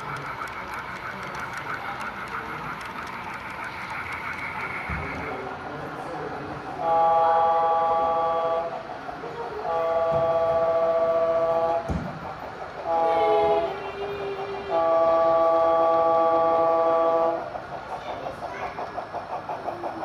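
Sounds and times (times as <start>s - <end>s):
engine pulsing: 0.0s - 20.0s
model train horn: 6.8s - 8.7s, 9.6s - 11.8s, 12.8s - 17.4s.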